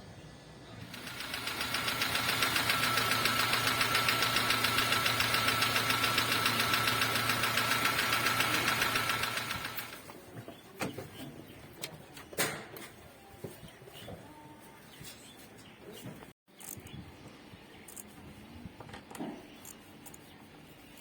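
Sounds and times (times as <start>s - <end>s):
car engine with ticking knock: 0.9s - 10.0s.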